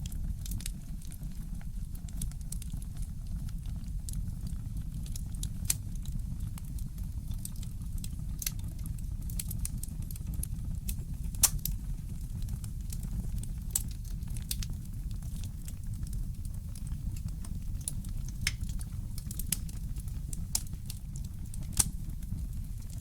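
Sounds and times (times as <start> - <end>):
fire pops and snaps: 0.0 - 23.0
wood fire crackling: 0.0 - 23.0.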